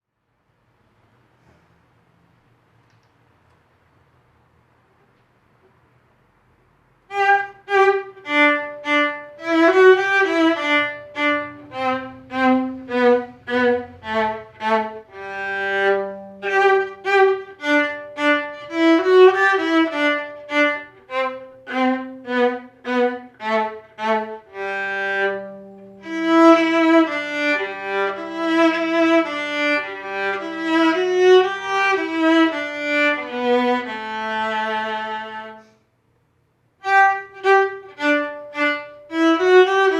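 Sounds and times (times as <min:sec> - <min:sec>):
solo viola melody: 0:07.1 - 0:35.8, 0:36.8 - 0:39.9.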